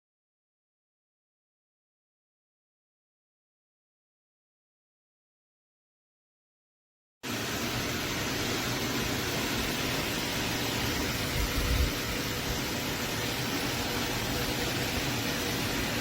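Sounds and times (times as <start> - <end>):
fan blowing air: 7.2 - 16.0.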